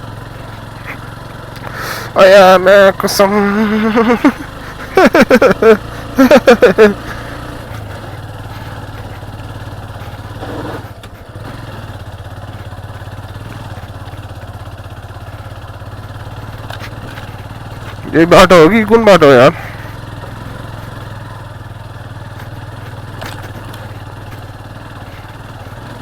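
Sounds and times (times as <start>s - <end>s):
motorcycle engine running: 0.0s - 26.0s
person speaking: 1.7s - 7.4s, 18.0s - 19.8s.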